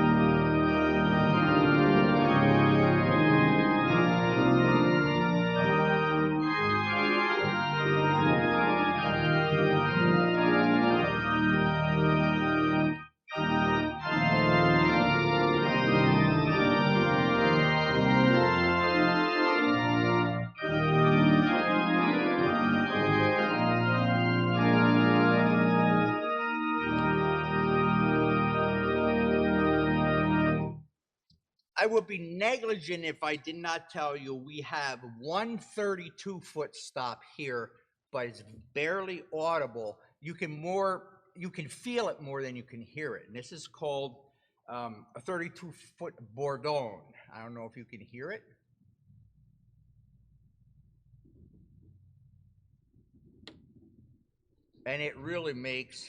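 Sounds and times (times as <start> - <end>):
church organ playing chords: 0.0 - 30.8, 31.8 - 37.2, 38.2 - 44.1, 54.9 - 56.0.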